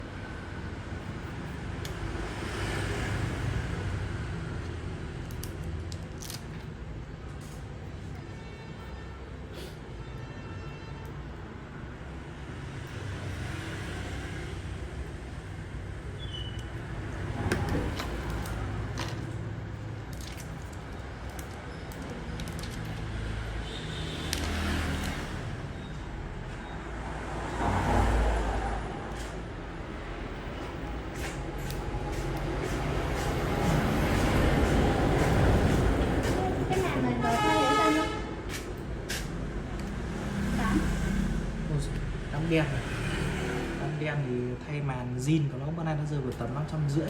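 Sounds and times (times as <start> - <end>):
traffic rumble: 0.0 - 9.9, 11.2 - 47.0
vehicle passing: 22.8 - 45.3.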